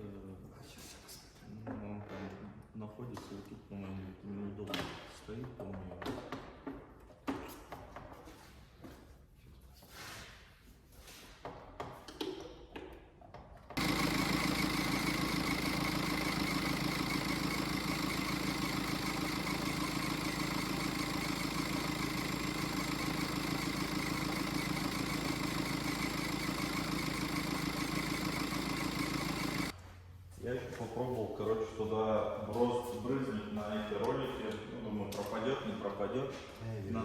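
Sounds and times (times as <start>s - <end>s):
diesel engine idling: 13.8s - 29.7s.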